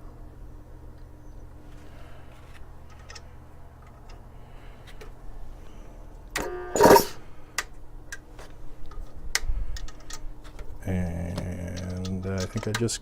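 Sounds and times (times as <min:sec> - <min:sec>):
air compressor humming: 0:01.6 - 0:07.9
scattered clicks: 0:11.2 - 0:13.0.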